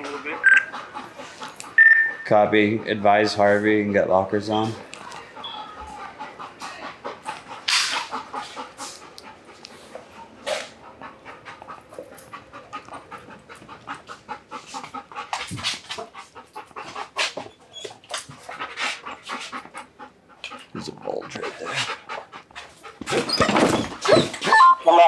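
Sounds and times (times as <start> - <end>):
dog panting rapidly: 0.0 - 24.5.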